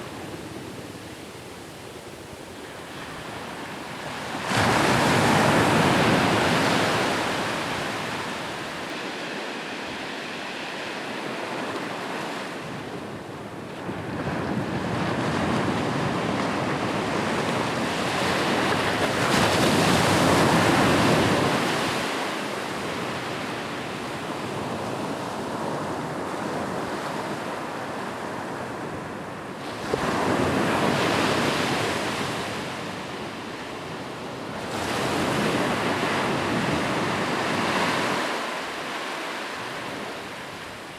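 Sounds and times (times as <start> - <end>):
ocean waves breaking on beach: 0.0 - 40.9.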